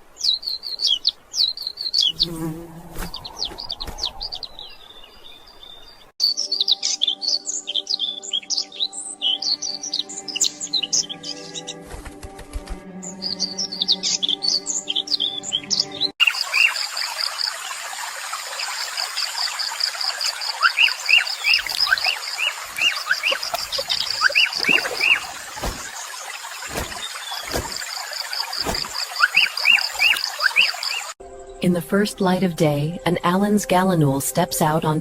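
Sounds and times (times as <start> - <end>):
bird chirps: 3.1 - 11.8, 13.1 - 16.8, 20.3 - 31.2
soft music: 6.2 - 16.2, 31.2 - 35.0
dull low thuds: 24.6 - 26.0, 26.7 - 27.8.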